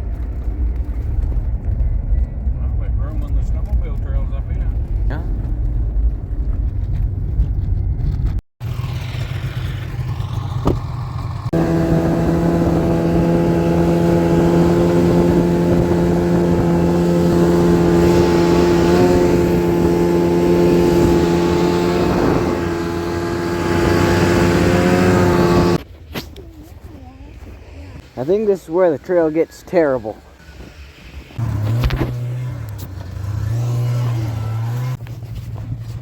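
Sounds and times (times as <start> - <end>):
snowmobile engine running: 8.6 - 25.8.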